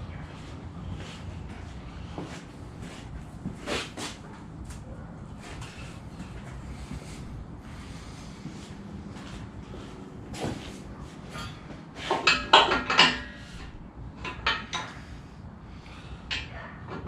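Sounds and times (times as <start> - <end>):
metal tools clanking: 11.2 - 15.2.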